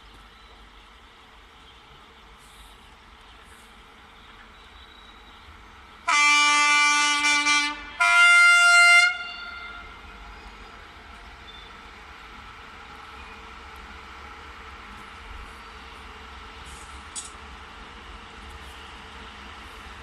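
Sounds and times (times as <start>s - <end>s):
train horn blasts: 6.0s - 10.0s.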